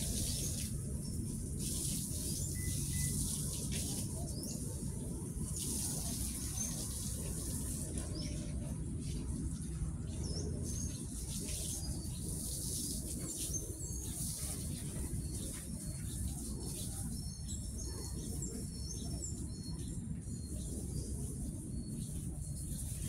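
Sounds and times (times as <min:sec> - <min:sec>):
steady low rumble: 0:00.0 - 0:12.4
bird chirps: 0:00.2 - 0:04.6.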